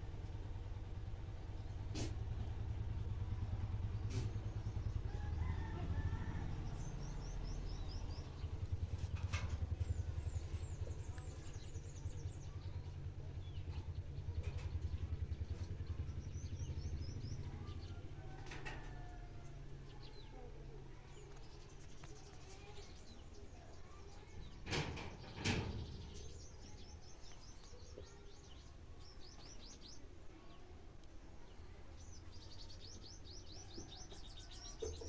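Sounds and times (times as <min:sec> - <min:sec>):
steady low rumble: 0:00.0 - 0:22.5
small birds chirping: 0:01.4 - 0:35.0.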